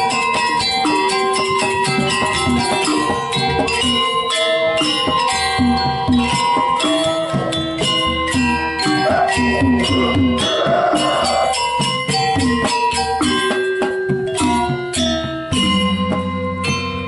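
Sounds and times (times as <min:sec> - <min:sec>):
bronze metallophones ringing: 0:00.0 - 0:17.0.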